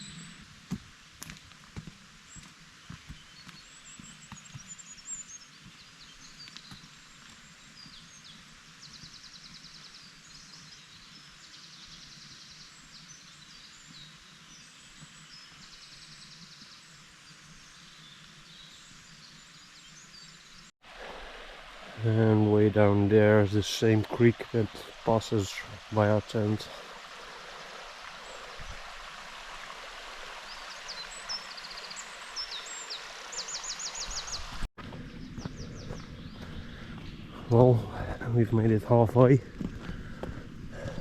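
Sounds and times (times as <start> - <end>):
woodland birds singing: 0.0 - 0.5, 2.3 - 20.7, 30.3 - 41.0
steady outdoor hiss: 0.0 - 41.0.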